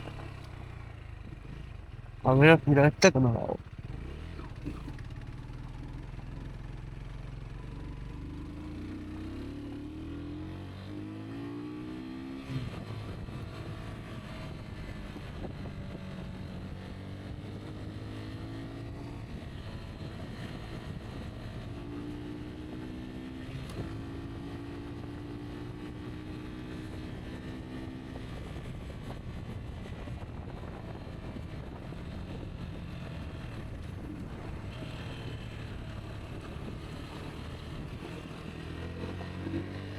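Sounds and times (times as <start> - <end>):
motorcycle engine revving: 3.6 - 6.1, 33.0 - 39.9.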